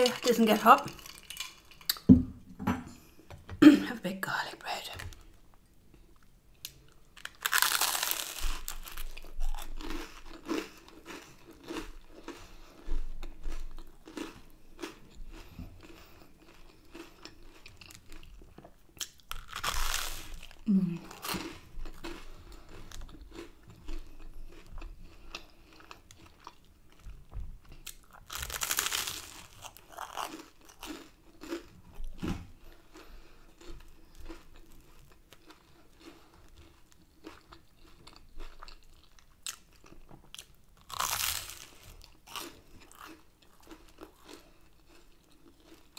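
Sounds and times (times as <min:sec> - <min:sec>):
person chewing food: 0:05.1 - 0:45.9
crunchy bites: 0:06.6 - 0:16.1, 0:19.0 - 0:23.6, 0:27.9 - 0:32.2, 0:37.2 - 0:44.4.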